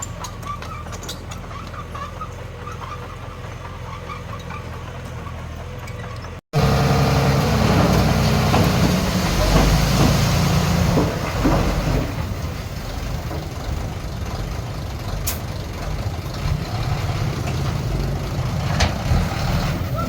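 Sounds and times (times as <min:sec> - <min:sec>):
heavy diesel engine running: 0:04.7 - 0:20.0.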